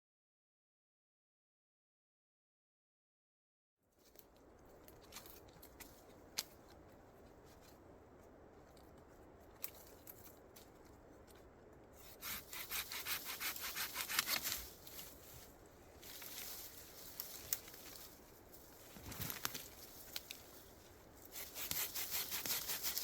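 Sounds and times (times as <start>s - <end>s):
low steady background: 3.8s - 23.0s
hand saw cutting wood: 12.0s - 14.6s, 21.3s - 23.0s.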